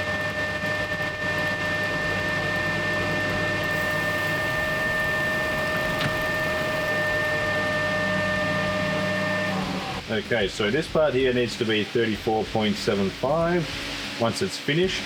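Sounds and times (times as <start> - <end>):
metal lathe whining: 0.0 - 10.0
hissing noise: 3.6 - 15.0.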